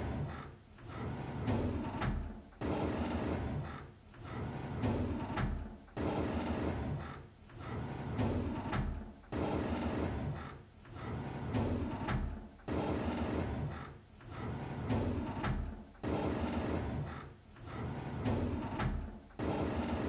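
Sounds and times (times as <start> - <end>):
drawer sliding open with click: 17.8 - 20.0.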